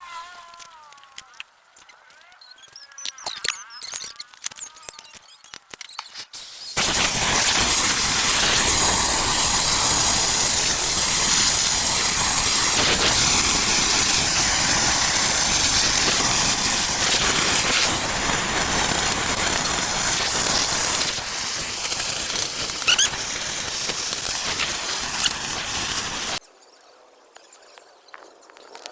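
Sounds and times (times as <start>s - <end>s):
torch igniter clicks: 5.5s - 26.4s
welding torch flame hissing: 6.2s - 26.4s.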